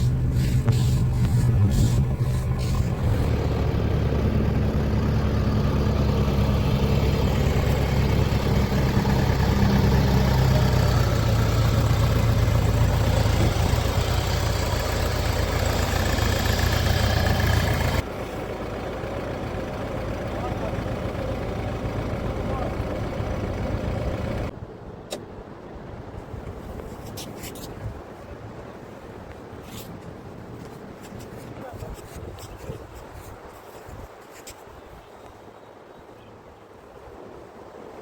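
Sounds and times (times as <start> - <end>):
diesel engine droning: 0.0 - 24.5.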